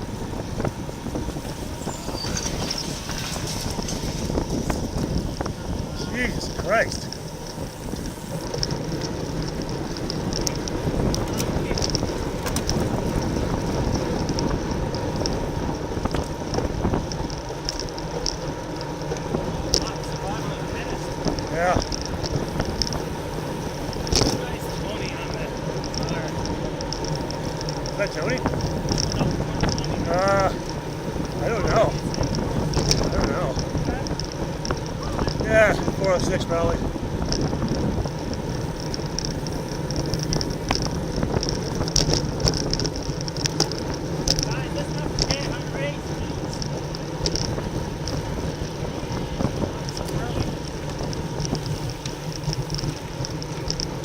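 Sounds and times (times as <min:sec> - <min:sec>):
bicycle road noise: 0:00.0 - 0:54.0
wind buffeting microphone: 0:00.0 - 0:54.0.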